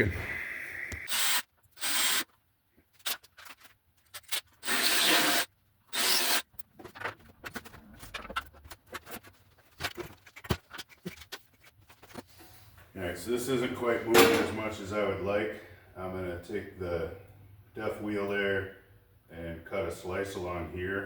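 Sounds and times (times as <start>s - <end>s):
drill cutting sheet steel: 1.1s - 2.3s, 4.6s - 6.4s.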